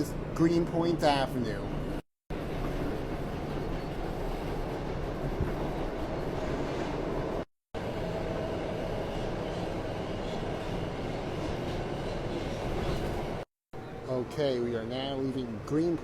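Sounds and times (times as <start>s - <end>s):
subway wheels rumbling on rail: 1.8s - 13.5s.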